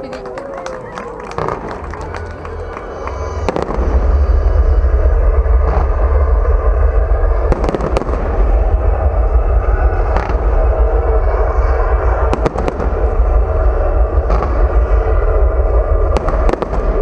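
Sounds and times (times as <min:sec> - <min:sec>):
fireworks booming and cracking: 0:01.2 - 0:17.0.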